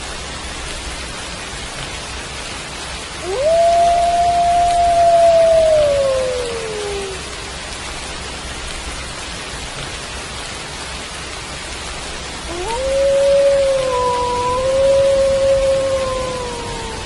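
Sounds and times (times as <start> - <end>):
steady rain falling: 0.0 - 17.0
wolf howling: 3.2 - 7.4, 12.5 - 17.0.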